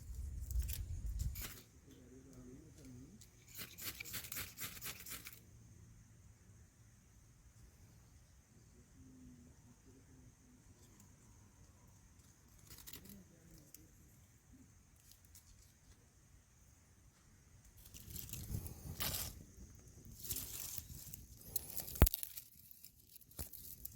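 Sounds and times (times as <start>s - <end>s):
twigs rustling and crackling: 0.0s - 5.4s, 12.1s - 14.1s, 14.8s - 16.0s, 17.6s - 23.9s
twig snapping: 20.2s - 23.9s.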